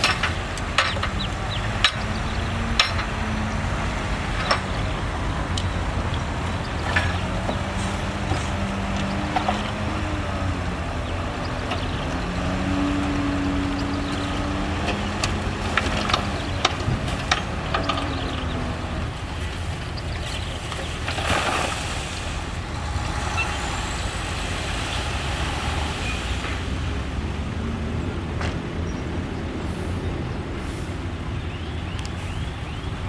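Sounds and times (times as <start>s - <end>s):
sharp knocks and clanks: 0.0s - 10.5s
diesel construction machinery running: 0.0s - 33.0s.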